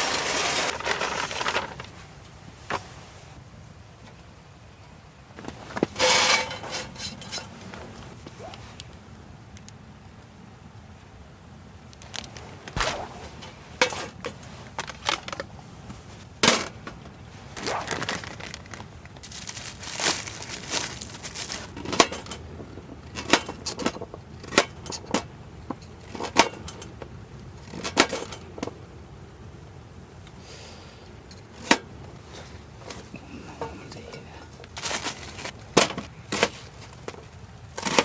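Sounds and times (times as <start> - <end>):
rustling crinkle: 0.0 - 3.4, 5.3 - 9.7, 11.8 - 30.4, 31.2 - 38.0
camp cookware knocking and clinking: 5.8 - 7.9, 12.7 - 15.6, 20.7 - 28.8, 32.8 - 38.0.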